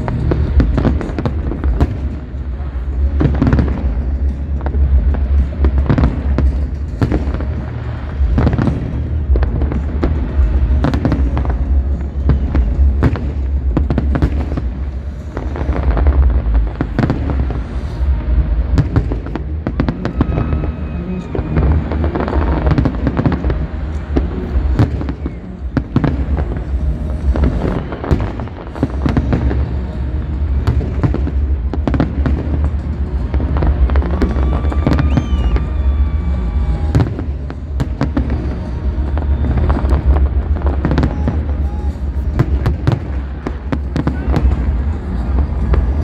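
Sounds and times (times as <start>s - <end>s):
deep rumble: 0.0s - 46.0s
fireworks bangs: 0.0s - 46.0s.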